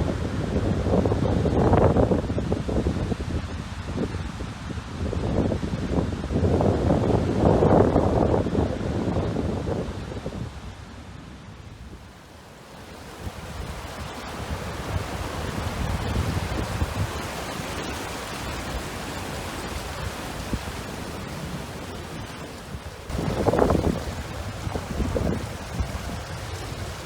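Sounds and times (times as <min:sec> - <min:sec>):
wind buffeting microphone: 0:00.0 - 0:12.1, 0:12.8 - 0:27.0
rushing water: 0:12.0 - 0:27.0.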